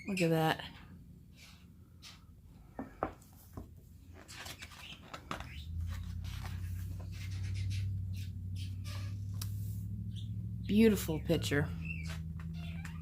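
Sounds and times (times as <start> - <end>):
paper pages rustling: 3.3 - 8.0
steady low hum: 5.5 - 12.8.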